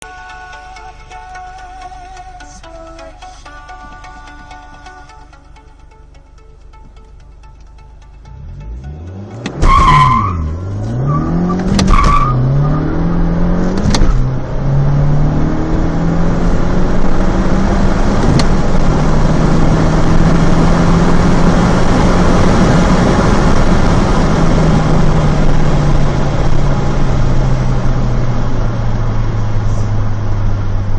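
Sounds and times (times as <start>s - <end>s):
car engine accelerating hard: 7.7s - 30.9s.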